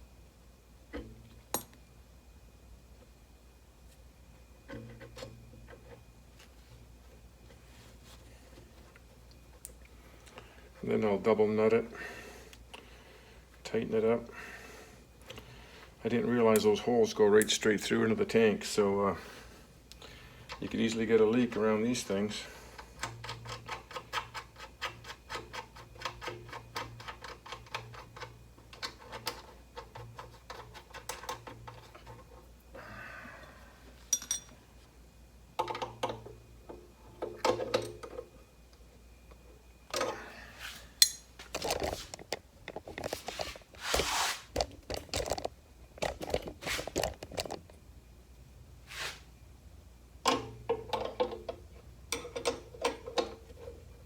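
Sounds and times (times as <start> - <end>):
metal nuts clinking and scraping: 41.0 - 41.8.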